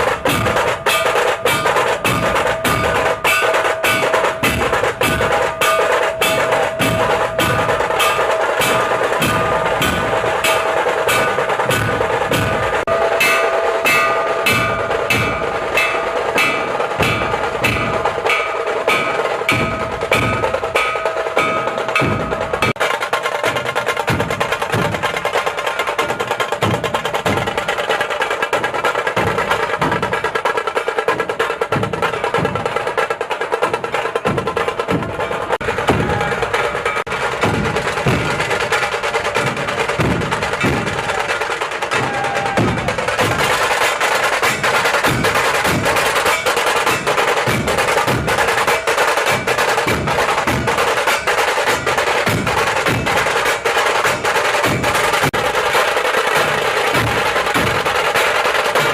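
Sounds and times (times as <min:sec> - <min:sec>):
fast percussion beat: 0:00.0 - 0:58.9
ringing tones: 0:00.8 - 0:22.8.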